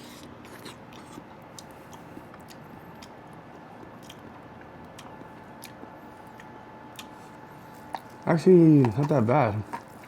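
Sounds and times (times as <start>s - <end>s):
low room hum: 0.0s - 10.0s
person chewing: 0.0s - 10.0s.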